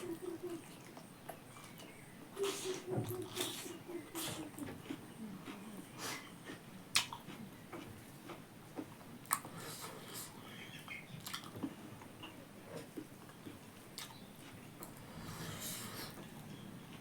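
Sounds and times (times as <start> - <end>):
person chewing: 2.4 - 8.5, 11.2 - 11.6, 13.5 - 15.0.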